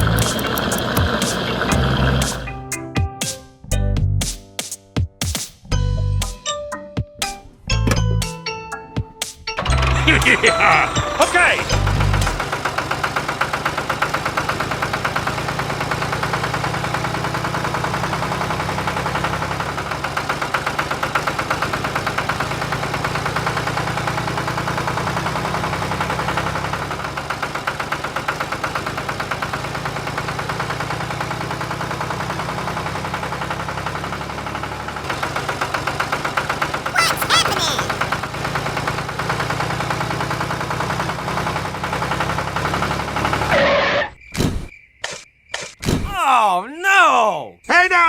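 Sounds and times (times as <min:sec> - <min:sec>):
small tractor engine running: 0:00.0 - 0:02.5, 0:11.8 - 0:36.2, 0:39.9 - 0:43.5.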